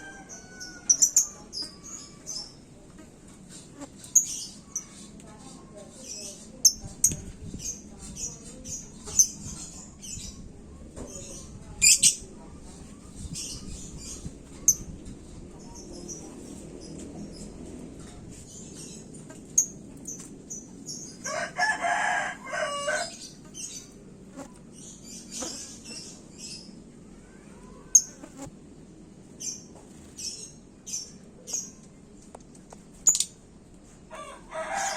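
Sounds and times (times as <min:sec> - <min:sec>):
rooster crowing: 0:00.0 - 0:01.1, 0:21.2 - 0:23.2, 0:34.1 - 0:34.9.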